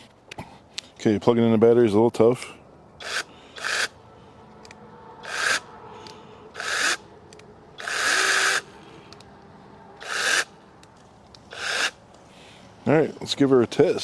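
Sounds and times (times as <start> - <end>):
mini chainsaw blips: 3.0 - 3.9, 7.8 - 8.7.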